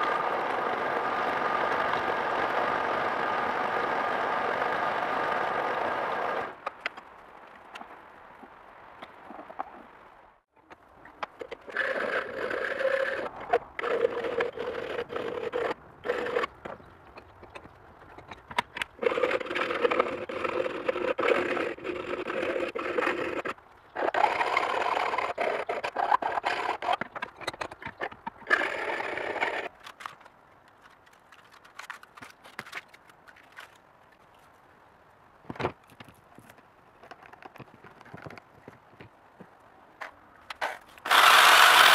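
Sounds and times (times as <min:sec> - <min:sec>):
power tool whining: 0:00.0 - 0:06.6, 0:41.0 - 0:41.9.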